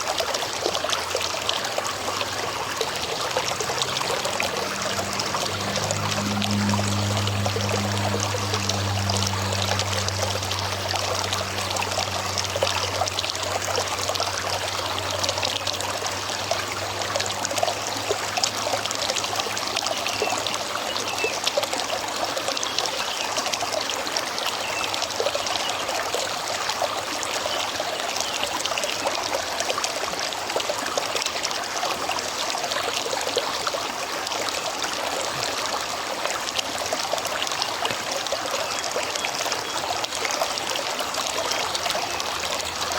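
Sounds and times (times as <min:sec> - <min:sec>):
river water flowing over stones: 0:00.0 - 0:42.9
low hum: 0:01.7 - 0:15.4.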